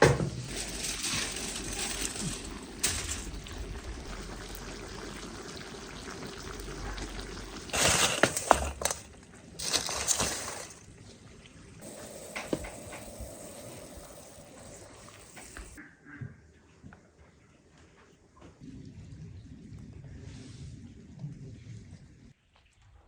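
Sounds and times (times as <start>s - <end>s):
water pouring and splashing: 0.4s - 15.8s.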